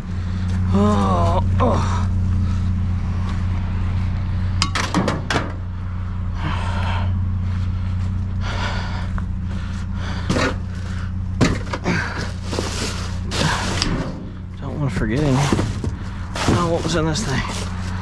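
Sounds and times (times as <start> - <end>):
vehicle engine idling: 0.0 - 18.0
rustling: 9.4 - 14.1, 15.2 - 18.0
scrap clicking and knocking: 10.2 - 10.8, 15.1 - 17.9.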